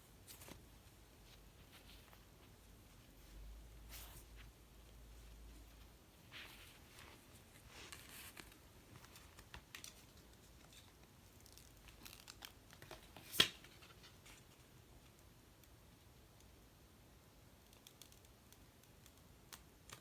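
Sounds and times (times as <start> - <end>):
handling rustling and scratching: 0.0 - 14.7.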